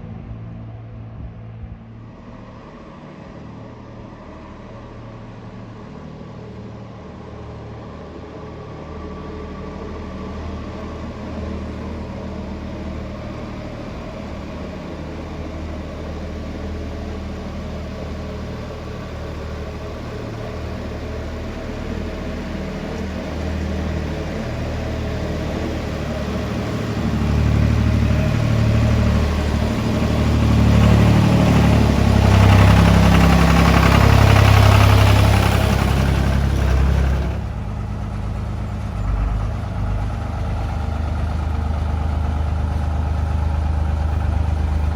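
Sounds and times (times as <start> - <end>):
tractor engine running: 15.5 - 44.9.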